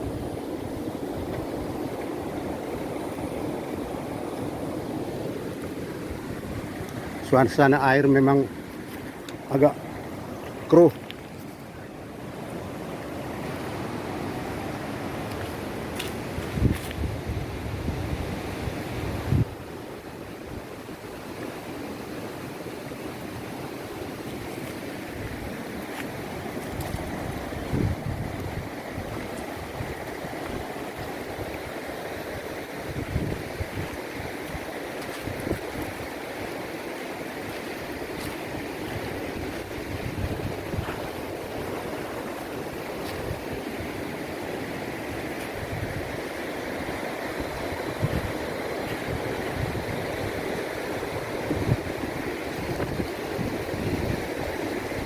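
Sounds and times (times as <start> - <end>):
river flowing: 0.0 - 55.0
wind on microphone: 11.2 - 21.2, 23.5 - 55.0.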